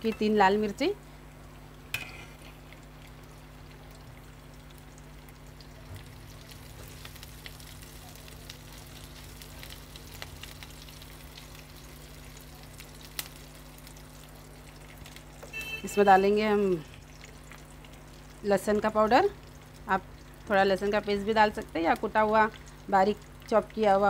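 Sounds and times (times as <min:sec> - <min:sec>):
spices sizzling in oil: 0:00.0 - 0:24.0
spatula stirring in pan: 0:01.9 - 0:02.9.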